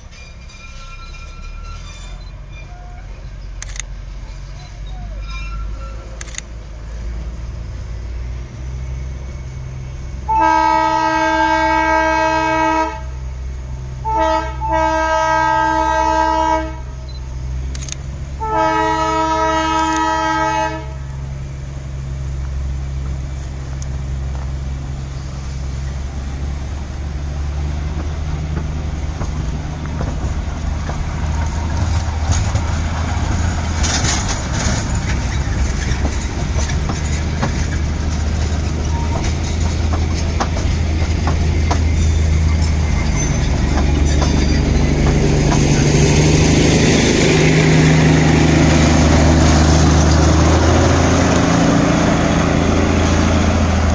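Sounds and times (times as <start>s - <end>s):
train rumbling: 0.0s - 53.9s
train horn blasts: 10.2s - 13.2s, 14.0s - 17.1s, 18.4s - 21.2s.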